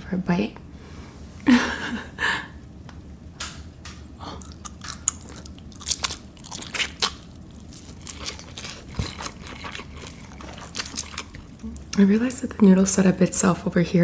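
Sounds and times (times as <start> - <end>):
person chewing food: 4.2 - 12.0.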